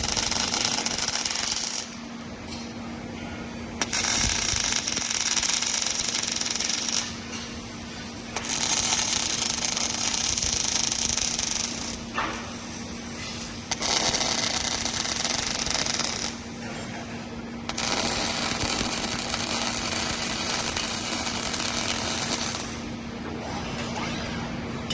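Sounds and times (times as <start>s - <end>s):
welding arc crackling: 0.0s - 2.1s, 3.8s - 12.2s, 13.4s - 16.8s, 17.6s - 23.0s
steady low hum: 0.0s - 24.9s.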